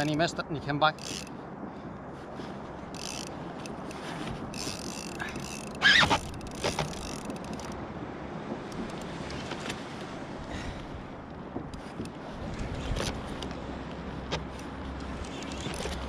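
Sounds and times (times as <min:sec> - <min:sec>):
water around a kayak: 0:00.0 - 0:16.0
wind: 0:00.0 - 0:16.0
small clicks and knocks: 0:04.6 - 0:07.8, 0:14.3 - 0:16.0.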